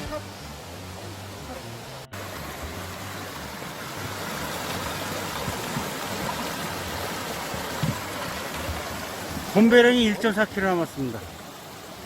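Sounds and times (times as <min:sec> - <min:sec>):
water rushing over rocks: 0:00.0 - 0:12.0
soft thump: 0:07.7 - 0:08.1.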